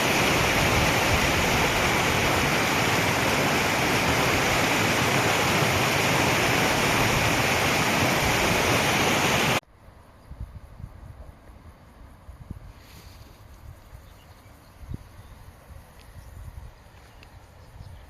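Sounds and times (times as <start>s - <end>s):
running water rushing: 0.0s - 9.6s.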